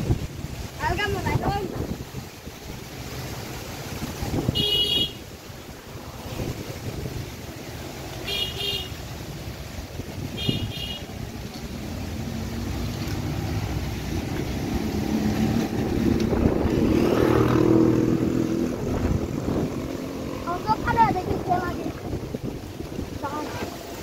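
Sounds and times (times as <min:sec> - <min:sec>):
wind buffeting microphone: 0:00.0 - 0:08.0, 0:09.3 - 0:24.0.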